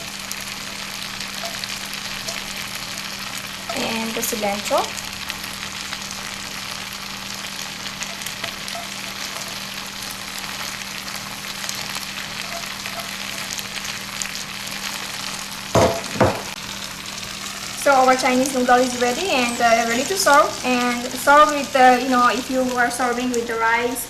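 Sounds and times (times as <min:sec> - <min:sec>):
noodles sizzling in a hot pan: 0:00.0 - 0:24.0
loud knocks: 0:15.8 - 0:16.6.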